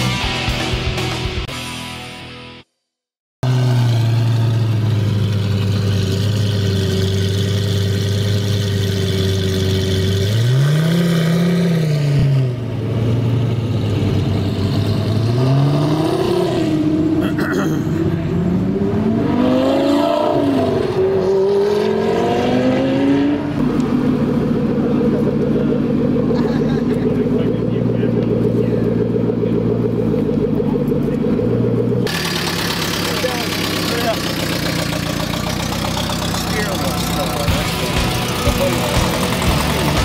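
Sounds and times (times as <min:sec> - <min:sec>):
sports car engine revving: 0:03.4 - 0:40.0.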